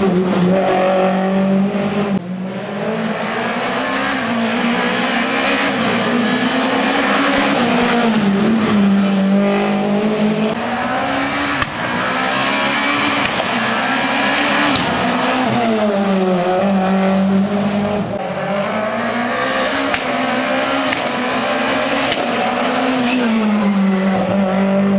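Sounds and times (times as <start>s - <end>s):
rally car engine revving hard: 0.0s - 24.9s.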